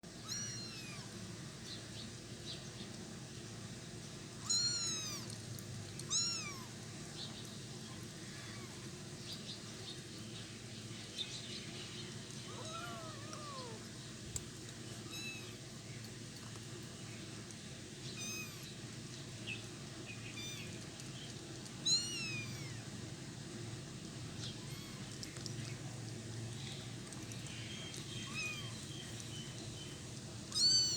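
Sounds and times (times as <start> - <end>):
kittens mewing: 12.5 - 13.9.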